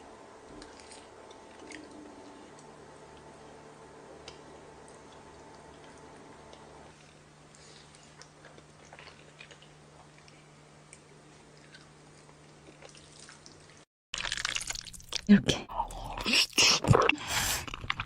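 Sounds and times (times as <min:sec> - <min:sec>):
steady low hum: 0:00.0 - 0:12.8
food being chewed: 0:00.5 - 0:03.3, 0:04.2 - 0:15.3, 0:16.8 - 0:18.0.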